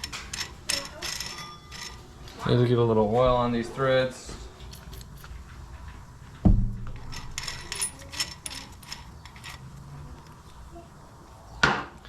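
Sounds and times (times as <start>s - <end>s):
steel tool parts clinking: 0.0s - 2.5s, 7.0s - 9.9s.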